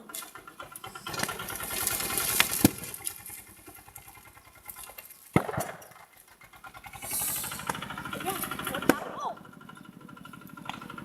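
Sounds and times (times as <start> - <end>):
tractor engine chugging: 0.0 - 11.0
sharp cracks: 0.8 - 6.2.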